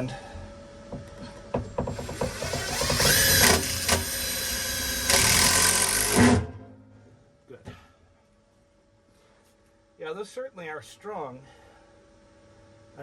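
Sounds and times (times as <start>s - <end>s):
power drill motor whining: 2.0s - 6.5s.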